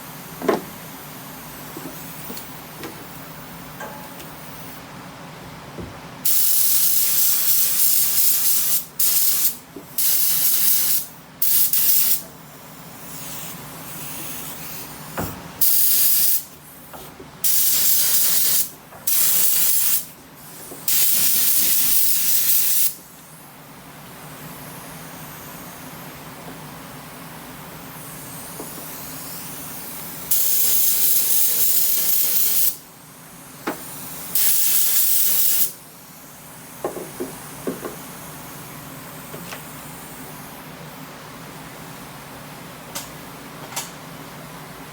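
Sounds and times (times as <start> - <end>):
spray gun hissing: 6.3 - 12.2, 15.6 - 16.5, 17.4 - 23.0, 28.0 - 36.9.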